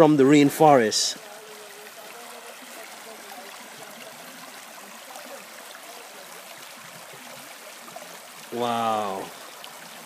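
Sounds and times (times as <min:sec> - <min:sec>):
creek water rushing: 0:00.0 - 0:10.0
water gurgling: 0:00.0 - 0:10.0.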